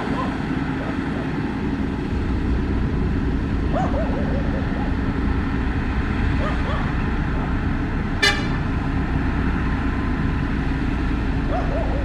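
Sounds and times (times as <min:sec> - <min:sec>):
diesel engine running: 0:00.0 - 0:12.0
short sharp horn toot: 0:08.2 - 0:08.6.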